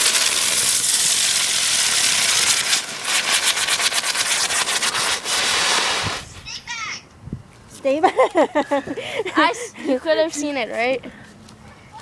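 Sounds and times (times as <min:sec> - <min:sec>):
rapid crackling pops: 0:00.0 - 0:06.2
firework fountain hissing: 0:00.0 - 0:06.4.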